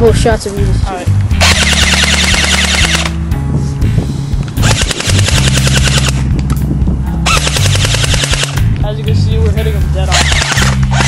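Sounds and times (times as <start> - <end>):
airsoft rifle firing full-auto bursts: 1.4 - 3.1, 4.6 - 6.2, 7.3 - 8.6, 10.1 - 11.0.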